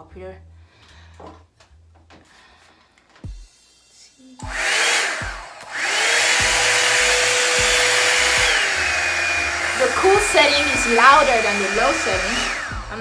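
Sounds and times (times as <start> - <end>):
hair dryer whining and blowing air: 4.4 - 13.0.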